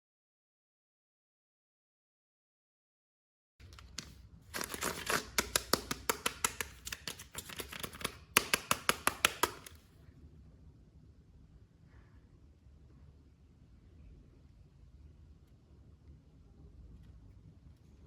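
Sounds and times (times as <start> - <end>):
plastic crinkling and tearing: 3.6 - 6.0
sharp clicks: 3.6 - 9.8.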